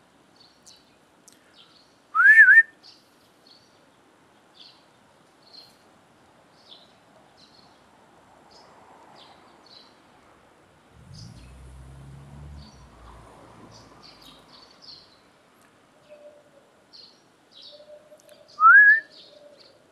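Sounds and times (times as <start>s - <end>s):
person whistling for a dog: 2.2s - 2.7s, 18.6s - 19.1s.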